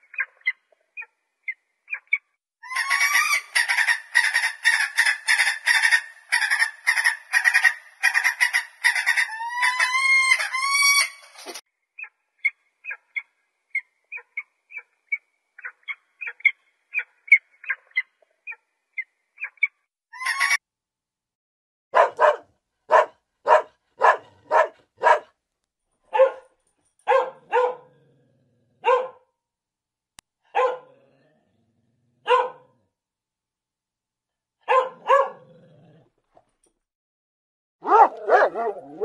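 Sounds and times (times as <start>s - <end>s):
dog barking: 21.9s - 25.4s, 26.1s - 28.0s, 28.8s - 29.3s, 30.5s - 31.0s, 32.2s - 32.8s, 34.6s - 35.6s, 37.8s - 39.0s.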